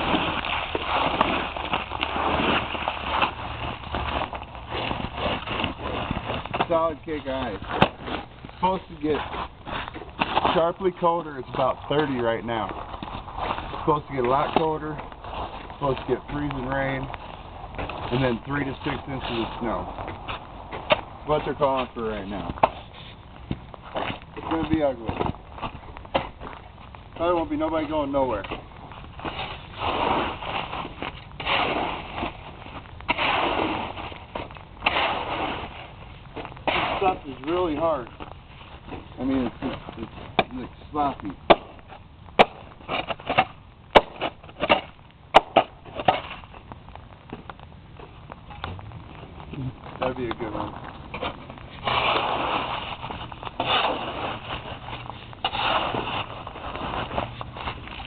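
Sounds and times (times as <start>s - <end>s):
sharp ice crack: 0.0s - 12.7s, 27.2s - 38.2s, 40.4s - 46.8s, 50.0s - 58.0s
sleet and ice crunching: 0.0s - 58.0s.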